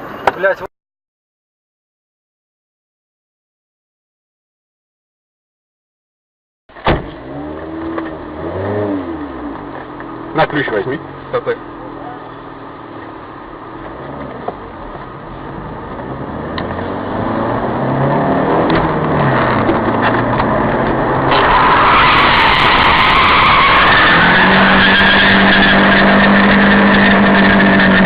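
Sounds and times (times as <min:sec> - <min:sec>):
car engine accelerating: 0:07.0 - 0:28.0.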